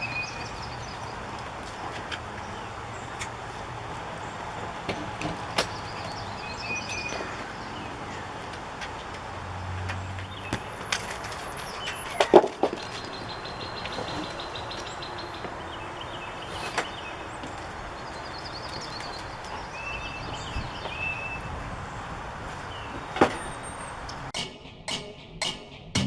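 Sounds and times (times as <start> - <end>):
sharp knocks: 24.4 - 26.0.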